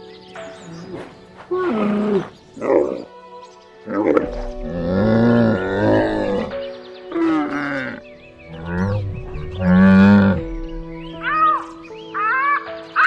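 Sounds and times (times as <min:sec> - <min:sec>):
background music: 0:00.0 - 0:13.0
animal calling: 0:00.6 - 0:03.2, 0:03.9 - 0:13.0.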